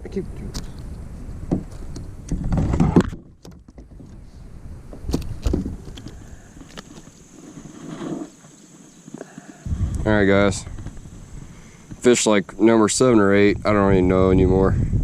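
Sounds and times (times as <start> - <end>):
knocks and bumps in a kayak: 1.4 - 8.5.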